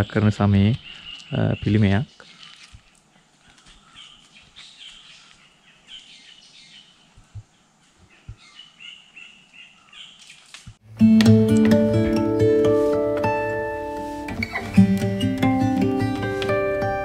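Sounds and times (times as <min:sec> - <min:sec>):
forest birds chirping: 0:00.0 - 0:10.8, 0:11.5 - 0:17.0.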